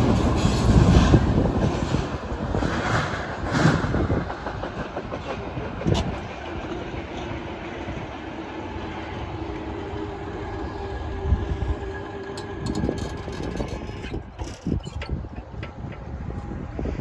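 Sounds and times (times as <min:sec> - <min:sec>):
train wheels clacking over rail joints: 0:00.0 - 0:07.4, 0:12.1 - 0:16.2.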